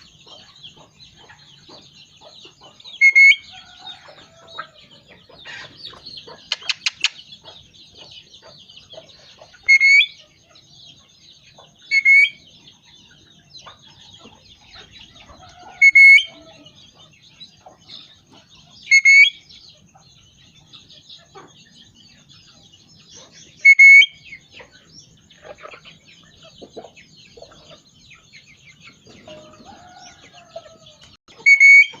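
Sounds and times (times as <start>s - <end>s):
parrot shrill calls: 3.0s - 3.8s, 9.6s - 10.2s, 11.9s - 12.4s, 15.7s - 16.6s, 18.9s - 19.4s, 23.6s - 24.2s, 31.3s - 32.0s
parrot twittering chatter: 5.4s - 7.3s
parrot clicks: 6.5s - 7.2s.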